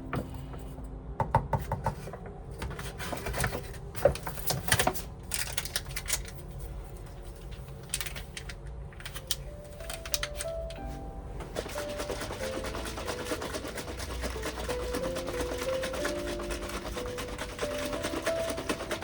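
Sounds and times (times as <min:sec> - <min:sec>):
low steady hum: 0:00.0 - 0:01.4, 0:02.0 - 0:15.6.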